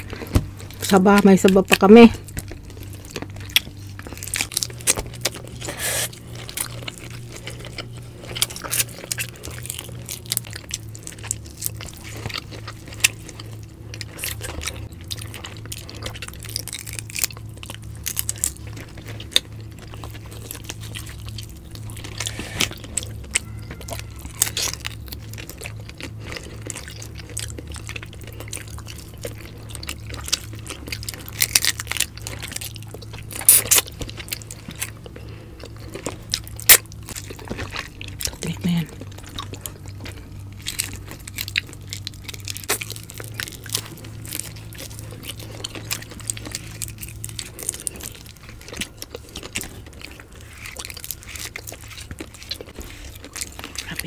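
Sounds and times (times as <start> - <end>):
chewing and crunching: 0.0 - 54.0
steady low hum: 0.0 - 54.0.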